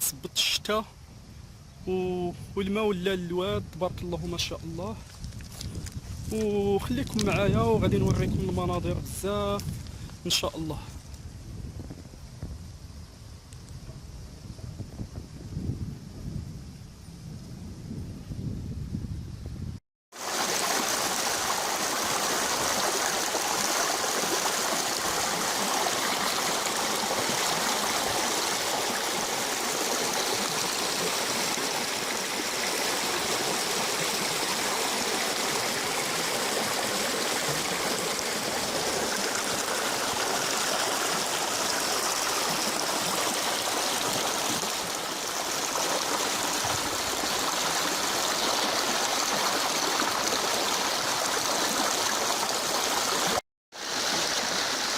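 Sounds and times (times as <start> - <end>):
river water rushing: 20.2 - 54.9.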